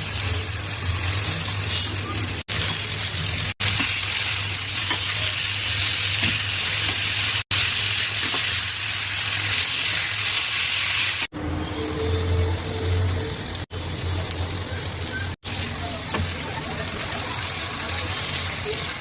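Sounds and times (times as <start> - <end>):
food sizzling in a pan: 0.0 - 11.3.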